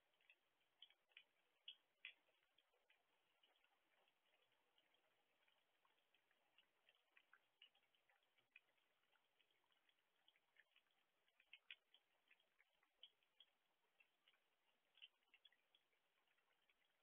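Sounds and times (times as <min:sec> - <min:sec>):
light raindrops ticking: 0:00.0 - 0:17.0.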